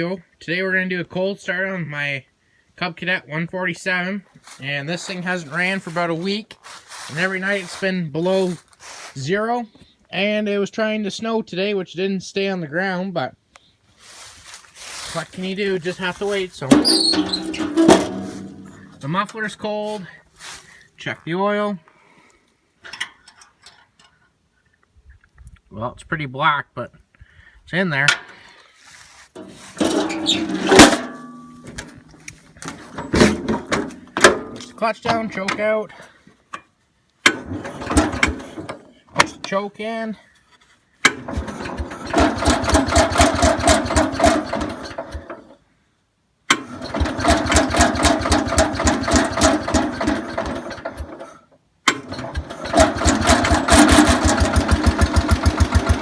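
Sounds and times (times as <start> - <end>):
garden tractor engine running: 5.0 - 7.8, 14.0 - 20.6, 28.9 - 35.6, 37.3 - 39.3, 41.0 - 45.5, 46.5 - 56.0
metal dipstick scraping: 14.9 - 19.2, 29.3 - 35.2, 37.3 - 39.3.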